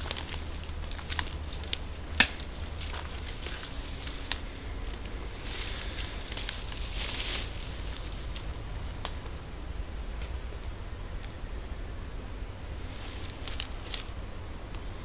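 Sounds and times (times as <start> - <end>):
sharp clicks and snaps: 0.0 - 5.2, 8.3 - 9.3
low rumble: 0.0 - 15.0
soft hiss: 0.0 - 15.0.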